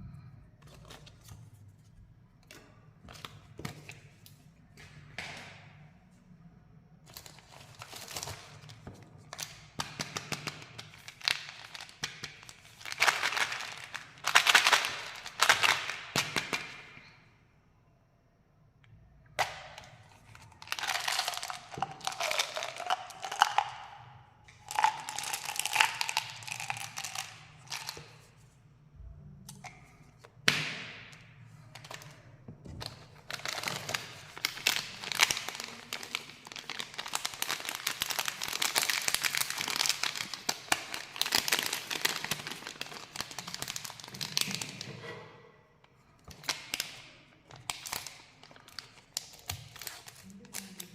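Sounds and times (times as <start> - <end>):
plastic wrappers crinkling: 10.9 - 16.0, 20.2 - 23.9, 24.6 - 28.3, 32.8 - 44.9, 47.5 - 50.9.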